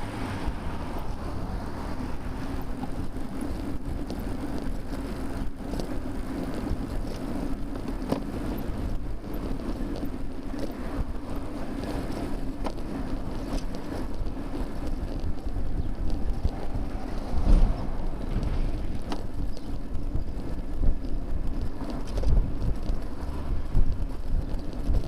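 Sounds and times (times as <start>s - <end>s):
road rumble: 0.0s - 25.0s
wind buffeting microphone: 0.0s - 25.0s
faint clicks and rattles: 2.5s - 25.0s.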